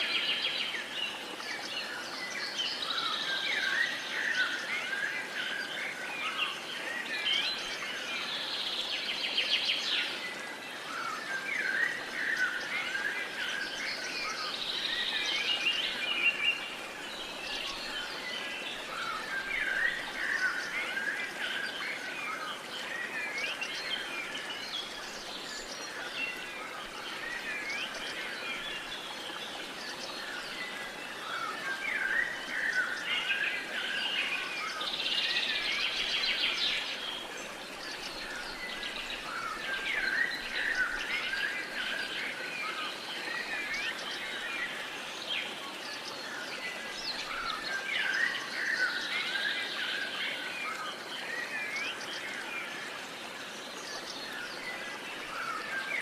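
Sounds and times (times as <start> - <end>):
songbirds singing and chirping: 0.0 - 56.0.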